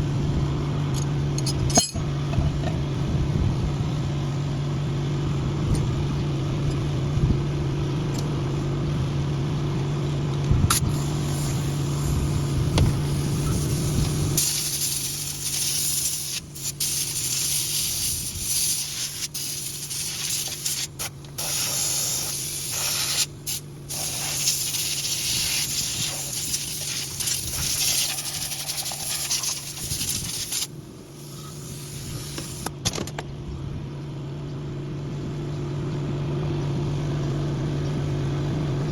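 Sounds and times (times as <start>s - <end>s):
low machine hum: 0.0s - 18.3s, 21.1s - 38.9s
loud spraying hiss: 10.9s - 32.6s.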